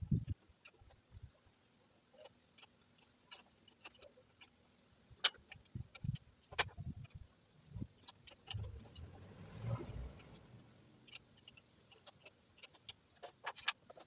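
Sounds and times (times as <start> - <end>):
tools clicking and knocking: 9.9 - 14.0.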